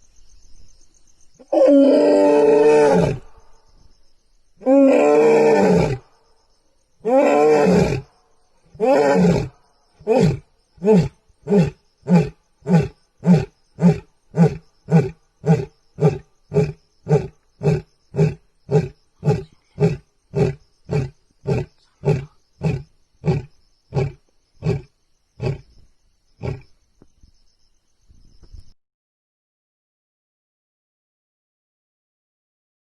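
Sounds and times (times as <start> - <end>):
lion roaring with grunts: 4.6 - 6.0, 7.0 - 8.1, 8.7 - 25.7.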